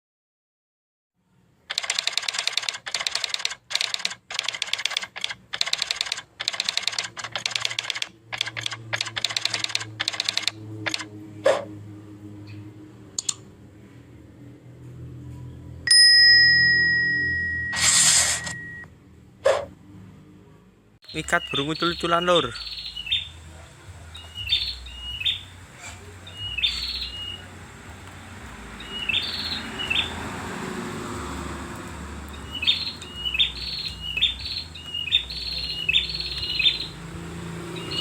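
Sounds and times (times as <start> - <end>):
songbird chattering calls: 21.0 - 27.7, 28.7 - 30.3, 32.3 - 37.1, 37.7 - 38.0.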